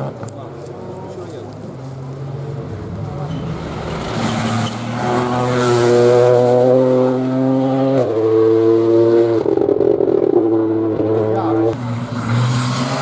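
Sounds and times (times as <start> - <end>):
rally car engine at high revs: 3.3 - 13.0.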